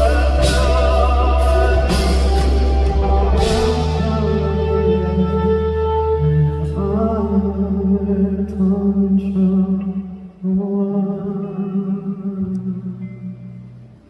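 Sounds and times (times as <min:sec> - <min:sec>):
live band music: 0:00.0 - 0:10.6
light guitar: 0:00.0 - 0:14.0
low bass: 0:00.0 - 0:14.0.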